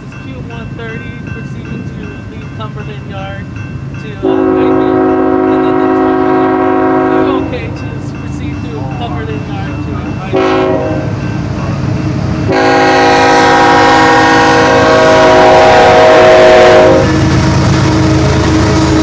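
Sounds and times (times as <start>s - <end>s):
low locomotive rumble: 0.0s - 19.0s
locomotive air horn blasts: 4.2s - 7.4s, 10.3s - 11.1s, 12.5s - 19.0s.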